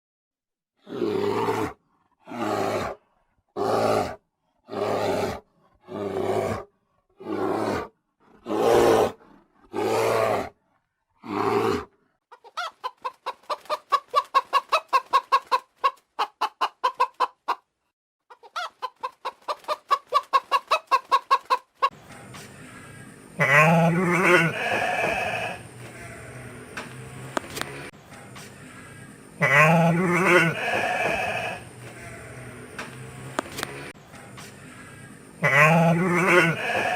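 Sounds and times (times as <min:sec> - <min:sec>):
chicken clucking: 0:12.3 - 0:17.7, 0:18.3 - 0:36.9
farm animal calls: 0:20.0 - 0:27.9, 0:28.6 - 0:33.9, 0:34.6 - 0:36.9.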